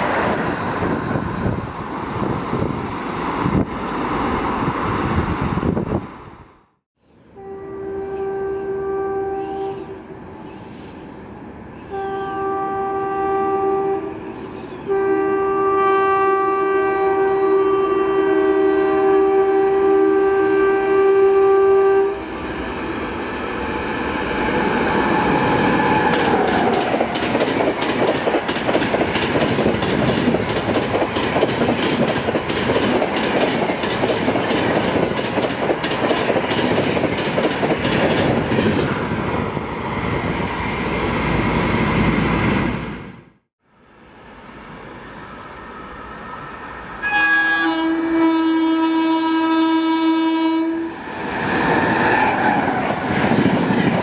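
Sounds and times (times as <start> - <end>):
train rushing past: 0.0 - 6.6, 7.3 - 54.0
locomotive horn blasts: 7.4 - 10.0, 11.9 - 14.2, 14.8 - 22.3, 47.0 - 51.0.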